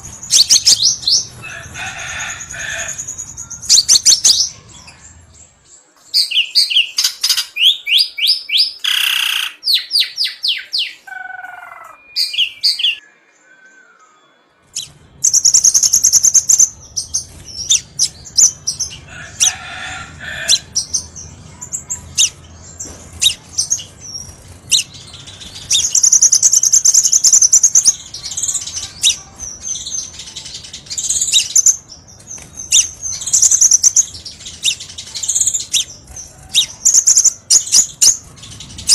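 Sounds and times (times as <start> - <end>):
low background rumble: 0.0 - 5.7, 14.6 - 38.9
bird chirping and trilling: 0.0 - 38.9.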